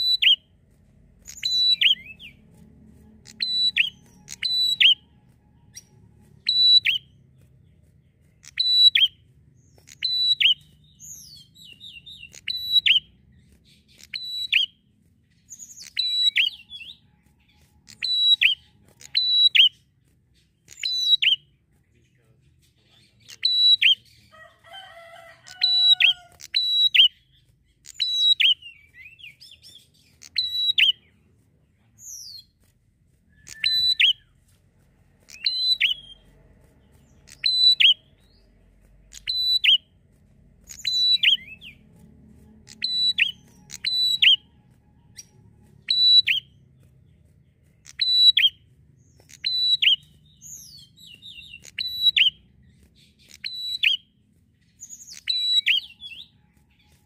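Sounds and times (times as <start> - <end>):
prinia singing: 0.0 - 0.5, 1.2 - 7.4, 35.2 - 39.9, 40.6 - 46.8.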